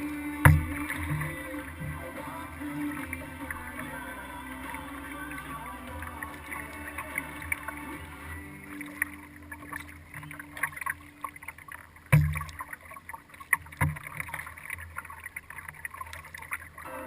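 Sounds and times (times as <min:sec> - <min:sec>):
paddle splashing water: 0:00.0 - 0:17.0
sharp thumps on kayak: 0:00.4 - 0:02.0, 0:12.1 - 0:12.6, 0:13.7 - 0:14.4.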